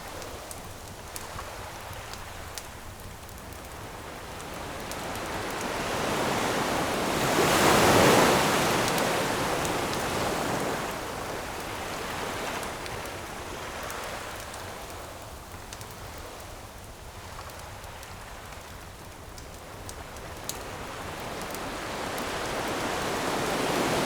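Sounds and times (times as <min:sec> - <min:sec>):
campfire crackles: 0:00.0 - 0:24.0
ocean wave breaking: 0:05.6 - 0:11.2, 0:21.3 - 0:24.0.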